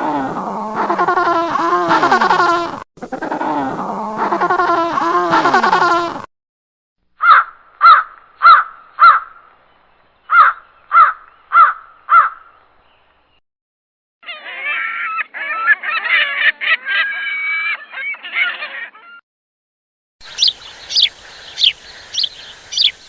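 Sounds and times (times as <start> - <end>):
animal drawn-out calls: 0.0 - 6.2, 14.2 - 19.2
crow cawing: 7.2 - 9.4, 10.3 - 12.5.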